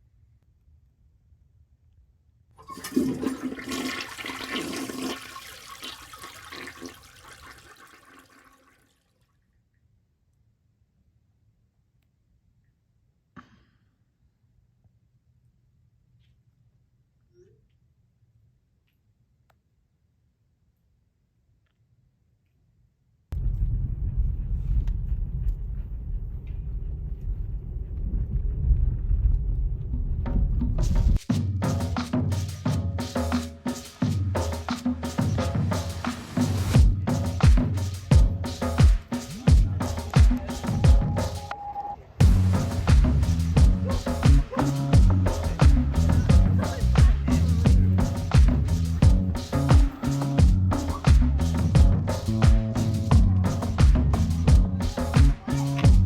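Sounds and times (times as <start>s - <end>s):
toilet flushing: 2.6s - 8.9s
drum-backed music: 30.6s - 41.6s, 42.2s - 56.0s.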